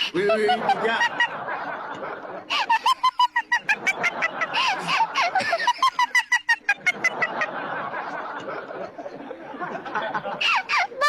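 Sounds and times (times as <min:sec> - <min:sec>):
high-pitched rapid laughter: 0:02.5 - 0:07.5, 0:10.4 - 0:11.0.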